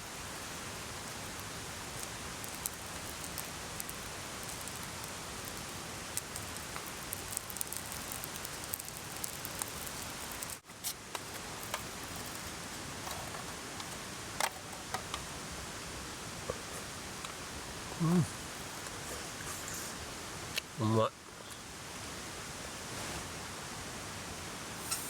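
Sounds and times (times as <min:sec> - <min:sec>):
small sharp crackles: 0:00.0 - 0:15.3
steady water noise: 0:00.0 - 0:20.6.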